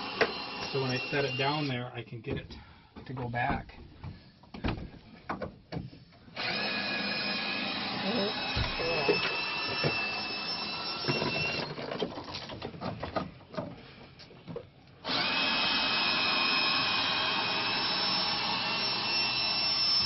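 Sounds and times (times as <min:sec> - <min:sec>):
power screw gun whining: 0:00.0 - 0:01.7, 0:06.4 - 0:12.1, 0:15.0 - 0:20.0.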